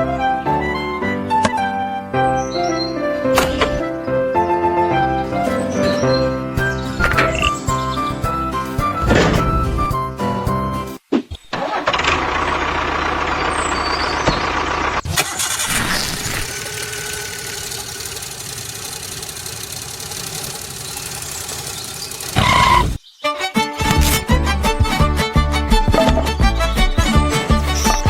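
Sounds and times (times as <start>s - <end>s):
engine running: 11.9s - 23.0s.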